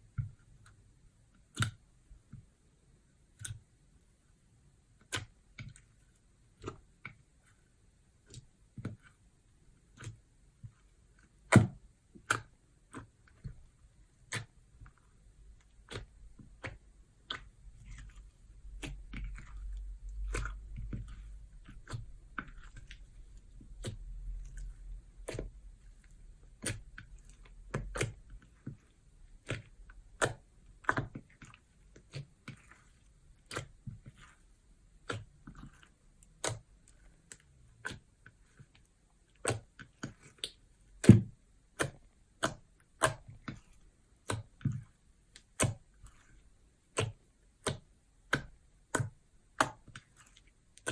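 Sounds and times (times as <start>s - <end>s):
slime clicking and popping: 39.4s - 50.9s.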